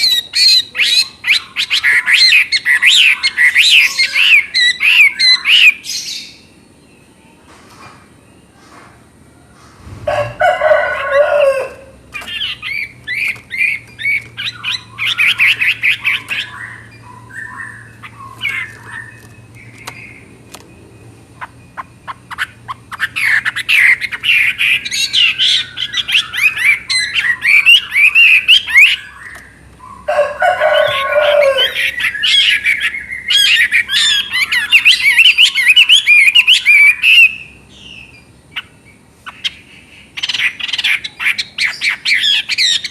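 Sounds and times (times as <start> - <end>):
bird singing varied phrases: 0.0 - 7.5, 10.2 - 42.9.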